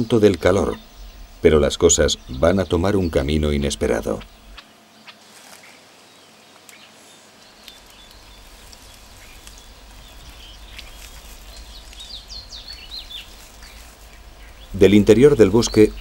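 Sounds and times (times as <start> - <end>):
low background rumble: 0.0 - 4.6, 7.8 - 16.0
high bird chirps: 6.7 - 16.0.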